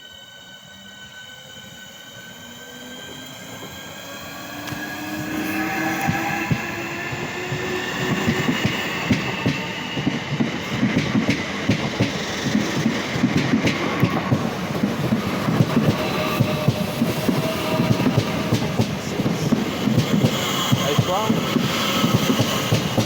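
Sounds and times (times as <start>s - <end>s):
train traction motors whining: 0.3s - 23.0s
train wheels clattering over rail joints: 6.0s - 23.0s.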